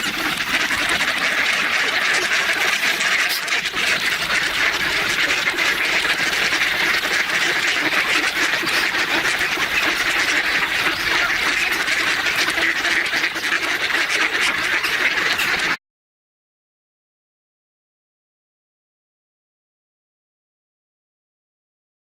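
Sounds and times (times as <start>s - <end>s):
ducks quacking: 0.0s - 15.8s.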